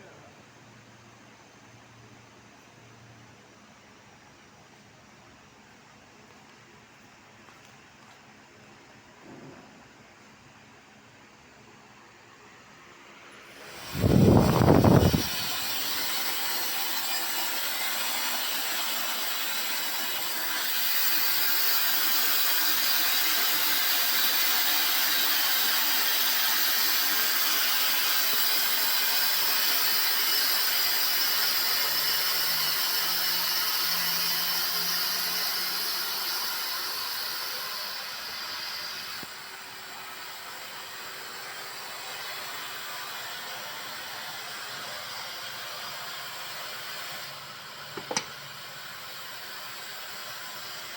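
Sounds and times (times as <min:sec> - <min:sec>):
machinery rushing hiss: 0:12.9 - 0:50.9.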